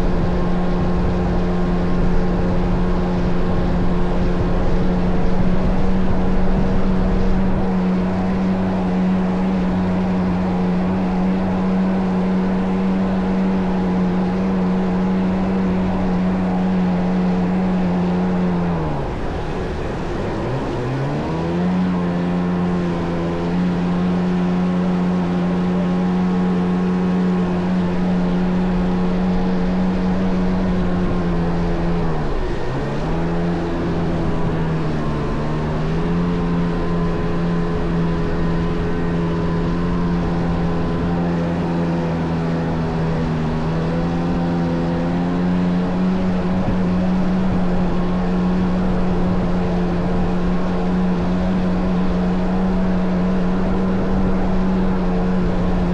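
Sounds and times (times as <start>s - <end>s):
jet ski engine: 0.0s - 55.9s
rushing noise: 12.6s - 55.9s.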